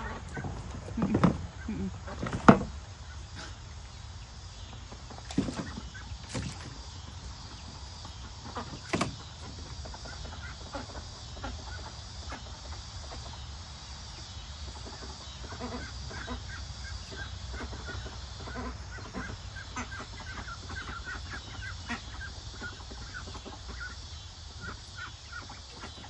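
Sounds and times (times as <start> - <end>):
steady low hum: 0.0 - 26.0
chicks peeping: 3.0 - 26.0.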